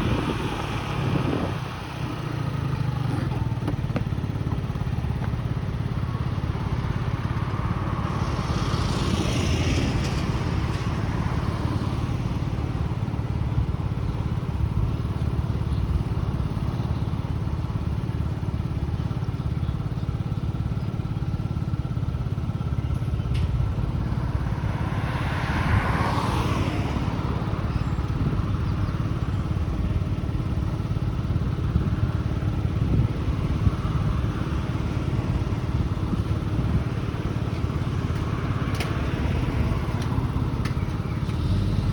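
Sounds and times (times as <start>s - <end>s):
vehicle passing by: 0.0s - 13.0s, 23.8s - 28.4s, 32.8s - 41.9s
motorcycle engine running: 0.0s - 25.8s, 26.8s - 41.9s
road and wind noise: 0.0s - 41.9s.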